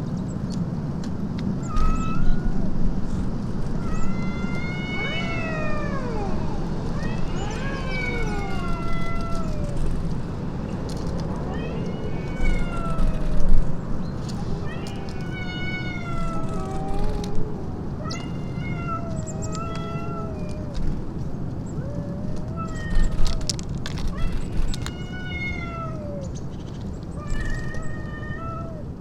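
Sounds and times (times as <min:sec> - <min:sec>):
cat meowing: 0:01.6 - 0:02.8, 0:03.6 - 0:10.3, 0:11.4 - 0:13.7, 0:14.3 - 0:21.0, 0:21.8 - 0:26.4, 0:27.2 - 0:29.0.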